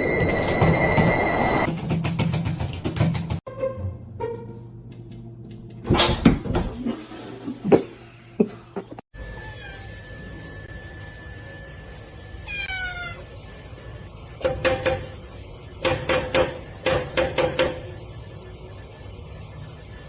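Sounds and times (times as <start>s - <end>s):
cat meowing: 12.5s - 13.2s.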